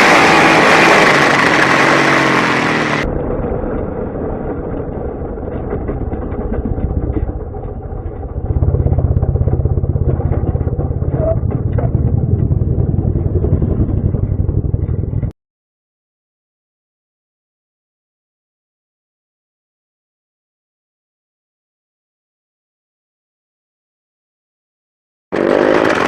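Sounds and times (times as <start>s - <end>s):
racing motorcycle engine running: 0.0s - 15.3s, 25.3s - 26.0s.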